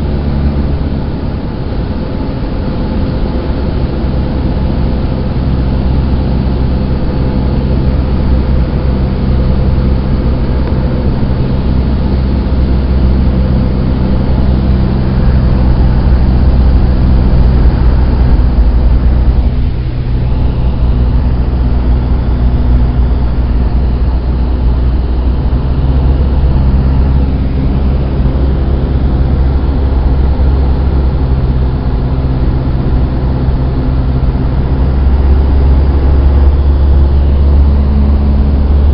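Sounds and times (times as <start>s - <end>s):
propeller plane engine droning: 0.0s - 38.9s.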